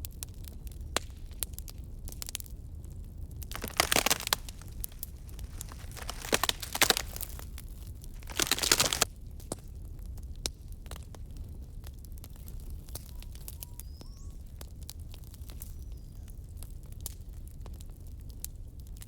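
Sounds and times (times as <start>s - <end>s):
campfire crackling and popping: 3.6s - 7.5s, 8.2s - 9.0s.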